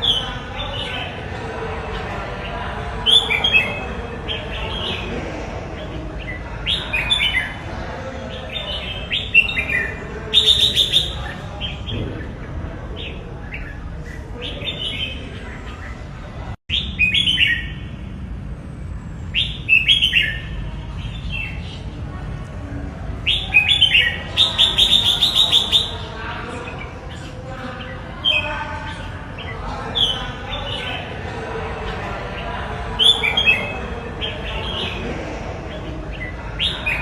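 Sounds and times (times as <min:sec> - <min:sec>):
bird chirping song: 0:00.0 - 0:18.0, 0:19.2 - 0:22.0, 0:23.1 - 0:31.2.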